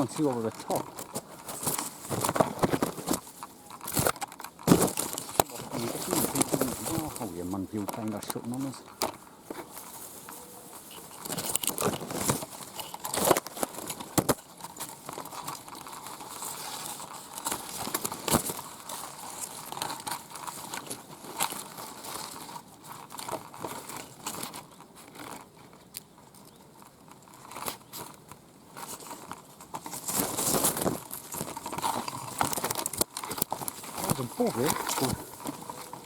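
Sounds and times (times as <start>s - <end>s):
leaves and twigs rustling: 0.0s - 36.0s
twigs cracking: 0.0s - 36.0s.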